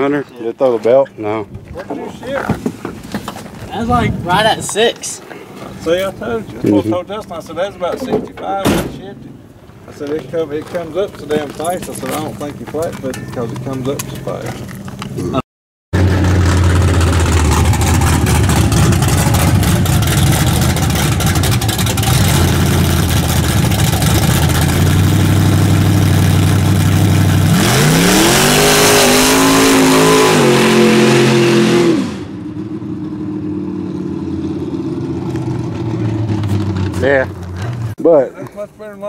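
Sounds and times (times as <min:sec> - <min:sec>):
car engine revving high: 0:16.0 - 0:37.0
tires spinning: 0:16.0 - 0:38.0.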